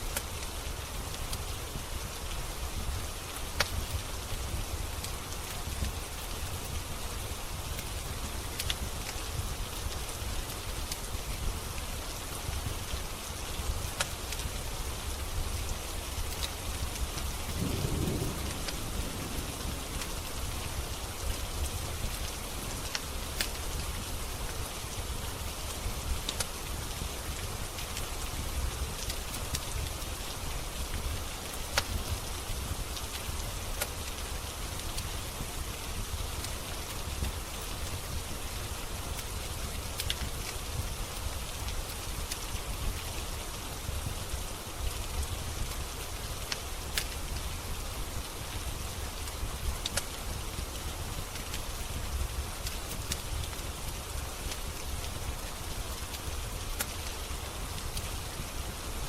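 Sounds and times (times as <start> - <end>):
steady rain: 0.0 - 59.0
wood fire crackling: 0.0 - 59.0.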